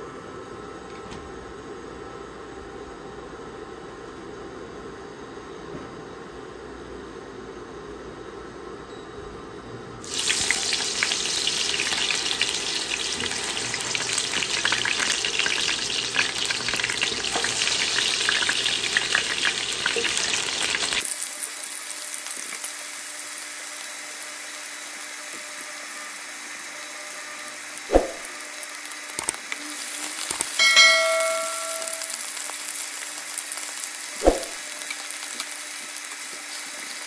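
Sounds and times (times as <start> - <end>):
potatoes sizzling in hot oil: 10.0 - 37.0.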